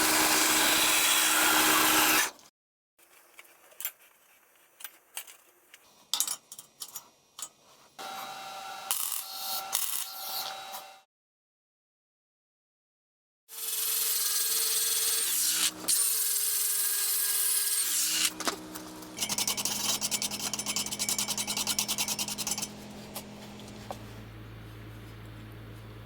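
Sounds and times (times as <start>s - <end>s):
power tool rasping: 0.0s - 2.4s, 13.5s - 24.2s
motor hum: 18.3s - 26.0s.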